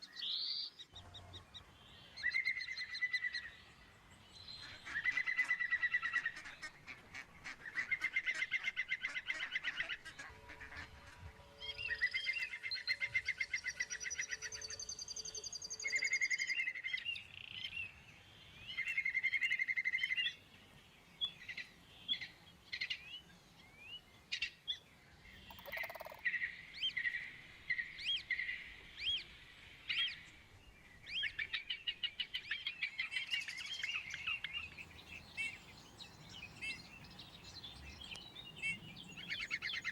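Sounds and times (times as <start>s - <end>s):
birds chirping: 33.6s - 39.9s
birds trilling: 34.8s - 39.9s.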